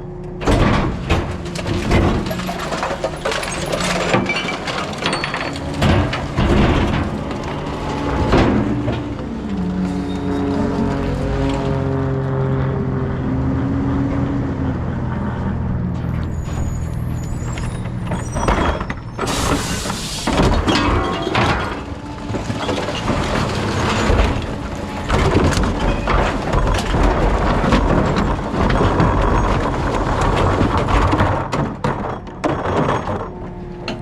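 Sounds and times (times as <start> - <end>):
clanks and clattering: 0.4 - 9.3, 16.0 - 34.0.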